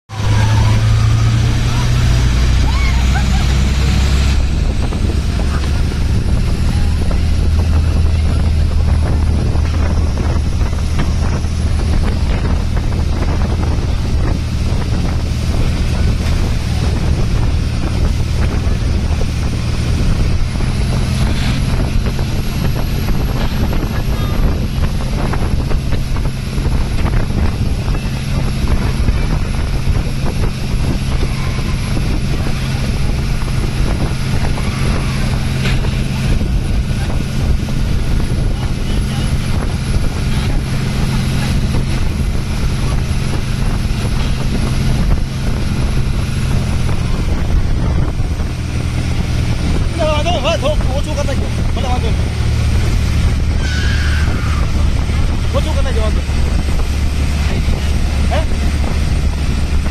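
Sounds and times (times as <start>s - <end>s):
motorboat engine running: 0.0s - 59.9s
wind buffeting microphone: 0.1s - 59.9s
thin high whine: 53.5s - 54.8s.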